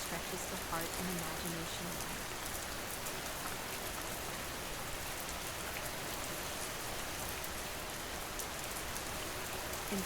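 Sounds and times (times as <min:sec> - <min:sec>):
raindrop ticks: 0:00.0 - 0:04.4
rain falling: 0:00.0 - 0:10.0.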